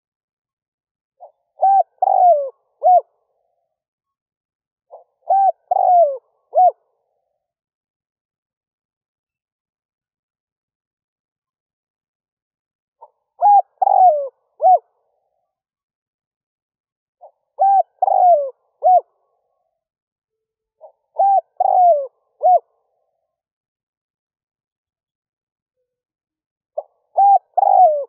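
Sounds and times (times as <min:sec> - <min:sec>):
dove cooing: 0:01.2 - 0:03.1, 0:04.9 - 0:06.9, 0:13.0 - 0:14.9, 0:17.2 - 0:19.2, 0:20.8 - 0:22.9, 0:26.8 - 0:28.0.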